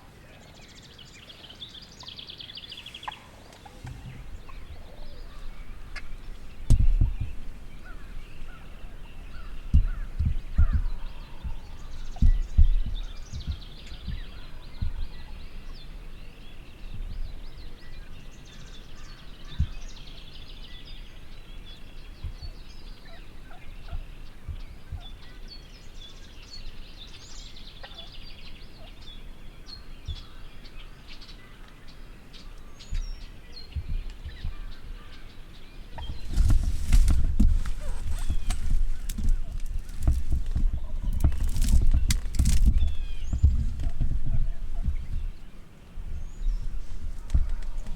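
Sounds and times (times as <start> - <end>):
songbird chirps: 0.0 - 47.9
turkeys gobbling: 2.9 - 6.4, 23.0 - 24.0, 27.8 - 28.1, 35.9 - 41.4
low thumps: 3.6 - 15.2, 36.0 - 45.4
loud rustling and thumping: 36.0 - 45.3.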